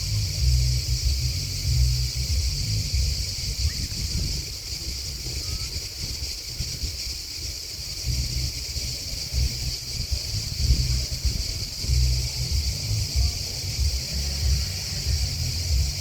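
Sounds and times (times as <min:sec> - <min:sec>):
insects chirping: 0:00.0 - 0:16.0
wind rumble on microphone: 0:00.0 - 0:16.0.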